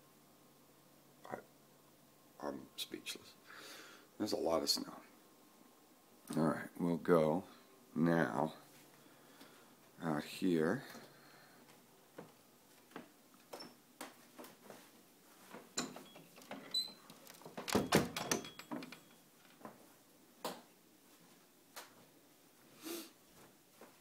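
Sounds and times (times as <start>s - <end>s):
door clicks and knocks: 15.8s - 19.1s.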